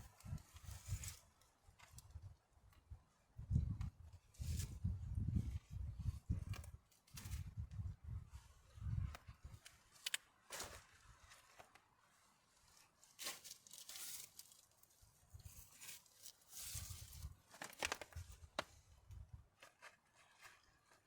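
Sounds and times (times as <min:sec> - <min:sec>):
rustling and crinkling material: 0:00.0 - 0:02.2, 0:09.4 - 0:18.9.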